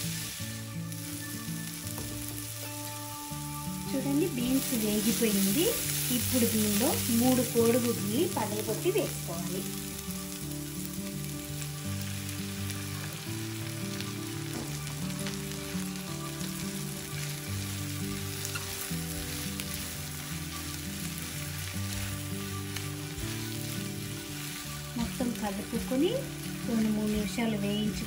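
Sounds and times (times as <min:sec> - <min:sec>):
soft background music: 0:00.0 - 0:28.0
vegetables sizzling in hot oil: 0:00.0 - 0:28.0.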